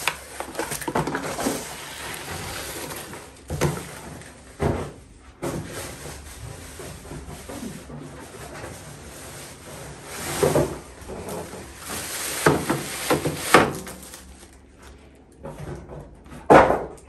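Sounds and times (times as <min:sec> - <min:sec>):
cardboard packaging rustling: 0:00.0 - 0:04.6, 0:08.9 - 0:15.1.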